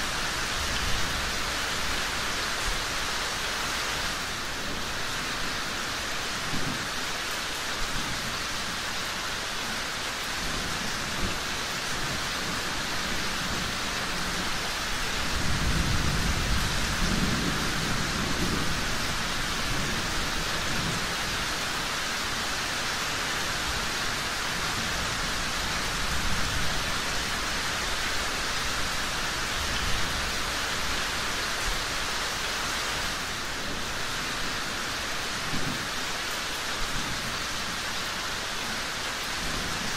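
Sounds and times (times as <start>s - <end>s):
heavy rain: 0.0s - 39.9s
thunder rumbling: 15.2s - 21.2s.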